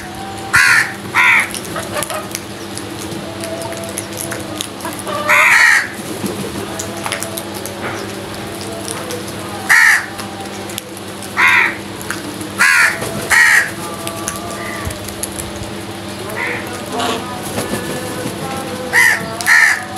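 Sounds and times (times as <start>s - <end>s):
crows cawing: 0.5s - 2.3s, 5.1s - 6.0s, 9.7s - 10.2s, 11.4s - 11.9s, 12.6s - 13.8s, 16.3s - 17.2s, 18.9s - 19.9s.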